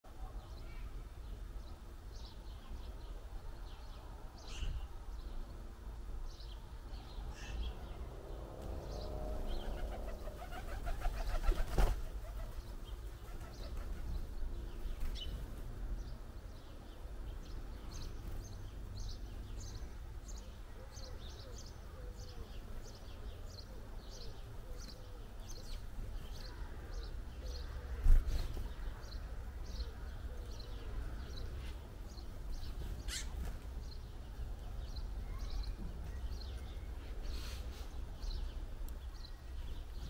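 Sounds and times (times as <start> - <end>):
small birds chirping: 0.1 - 40.0
bird wingbeats: 9.6 - 14.3.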